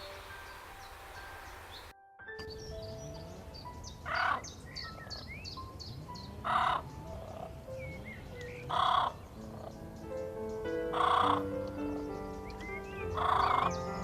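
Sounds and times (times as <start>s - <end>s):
small birds chirping: 0.0s - 14.0s
soft background music: 0.0s - 14.0s
large bird harsh calls: 3.1s - 14.0s.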